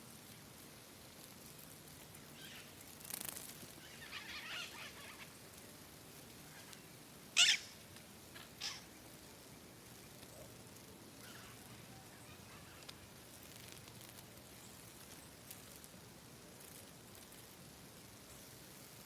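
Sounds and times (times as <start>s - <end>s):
bird harsh calls: 3.8s - 5.2s, 7.4s - 7.7s.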